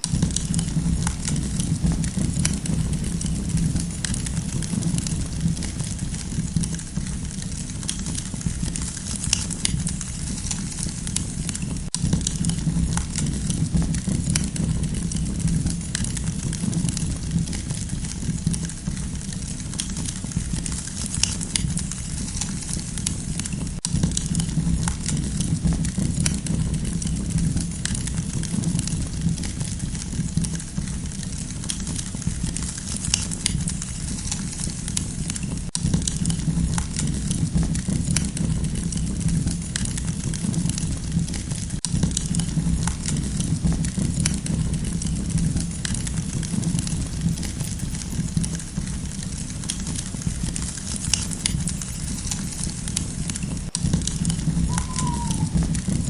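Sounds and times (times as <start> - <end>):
campfire crackling and popping: 0.0 - 6.6, 41.9 - 56.0.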